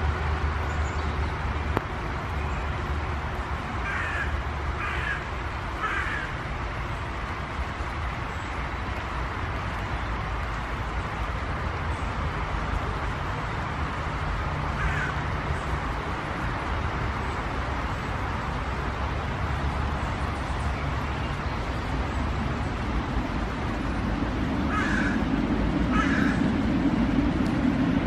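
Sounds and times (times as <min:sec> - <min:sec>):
low background rumble: 0:00.0 - 0:28.0
bird giving harsh calls: 0:25.9 - 0:26.4.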